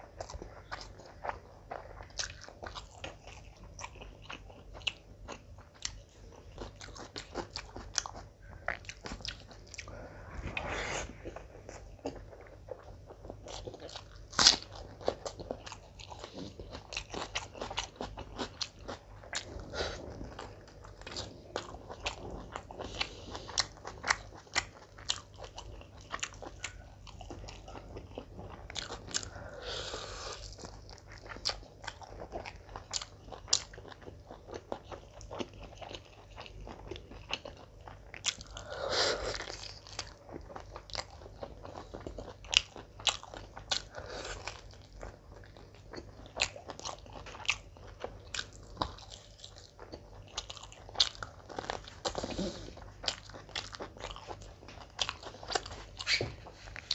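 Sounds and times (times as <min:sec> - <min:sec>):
biting and chewing food: 0:00.0 - 0:56.9.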